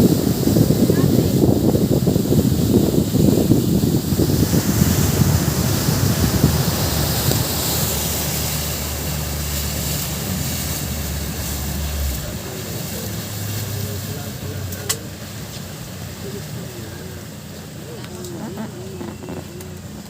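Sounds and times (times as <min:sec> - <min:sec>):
engine droning: 0:00.0 - 0:20.0
wind buffeting microphone: 0:00.0 - 0:20.0.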